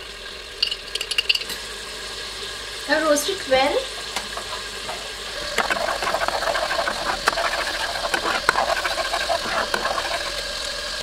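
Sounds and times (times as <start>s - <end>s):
paste sizzling in hot oil: 0.6s - 11.0s
spatula clicking and scraping: 5.4s - 10.5s.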